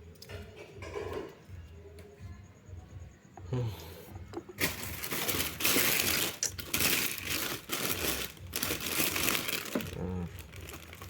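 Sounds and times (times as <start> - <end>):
plastic packaging crinkling: 4.6 - 11.0.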